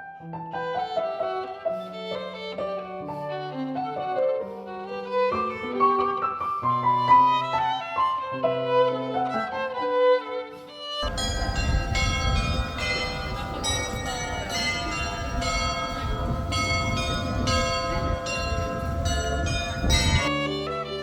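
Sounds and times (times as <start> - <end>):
church bells pealing: 11.0 - 20.3
low rumble of wind: 11.0 - 20.3.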